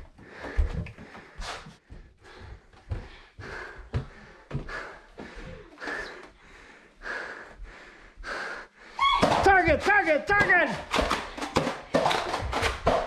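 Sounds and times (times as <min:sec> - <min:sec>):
soft footsteps: 0:00.0 - 0:06.5
person breathing hard: 0:00.0 - 0:09.1.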